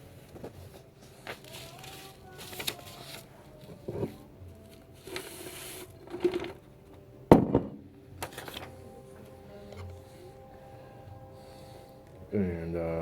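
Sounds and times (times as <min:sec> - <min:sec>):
tobacco rustling and scraping: 0:00.2 - 0:06.7.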